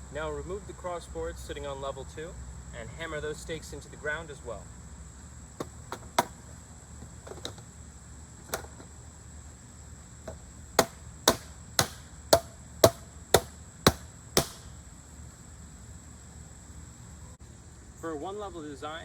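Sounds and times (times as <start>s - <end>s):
hammer striking stakes: 10.3s - 14.8s.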